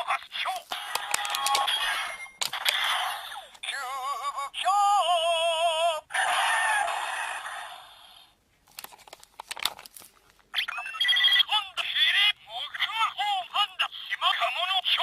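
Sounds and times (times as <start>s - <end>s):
sharp clicks: 1.0s - 1.7s.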